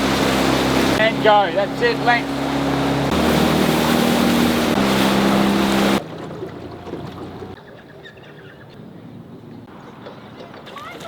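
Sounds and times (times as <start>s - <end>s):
water rushing: 0.0s - 7.6s
motorboat engine running: 0.0s - 7.7s
wind: 0.0s - 11.0s.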